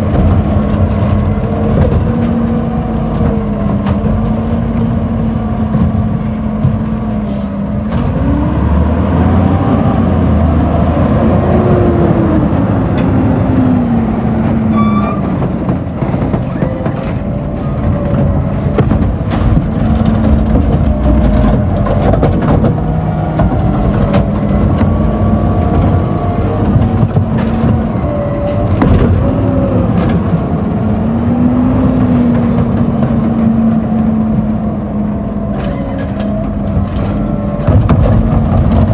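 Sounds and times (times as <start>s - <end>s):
knocks and clanks: 0.0s - 8.3s, 14.4s - 30.5s, 35.6s - 38.9s
diesel engine revving: 0.0s - 38.9s.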